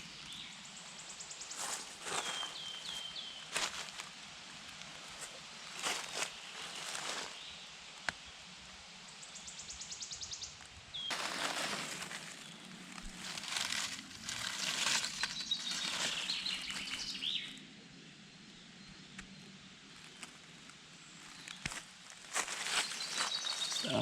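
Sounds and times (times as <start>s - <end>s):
footsteps rustling leaf litter: 1.6s - 4.2s, 5.0s - 7.5s, 11.1s - 17.5s, 21.4s - 24.0s.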